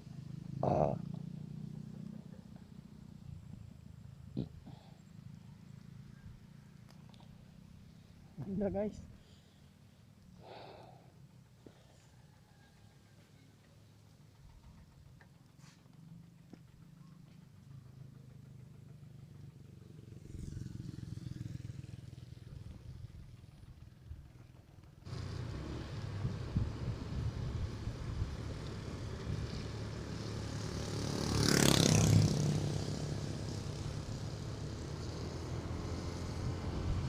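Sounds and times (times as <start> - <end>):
motorcycle engine humming: 14.0 - 37.0
wind and road noise: 25.1 - 37.0.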